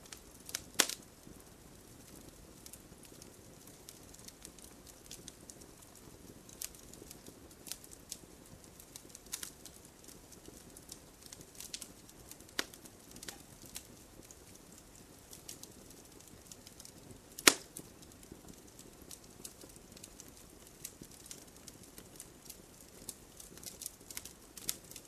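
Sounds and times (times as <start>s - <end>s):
sharp snaps of fire: 0.0s - 25.0s
wood fire crackling: 0.0s - 25.0s.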